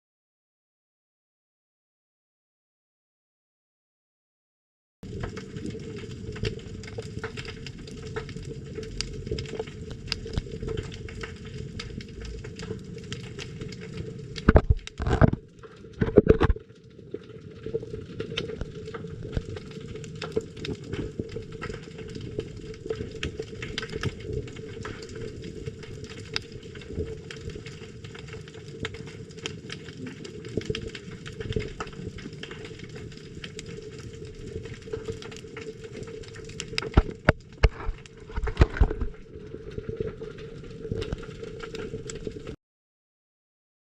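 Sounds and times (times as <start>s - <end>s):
snapping shrimp clicks underwater: 6.2s - 16.7s, 18.2s - 39.2s.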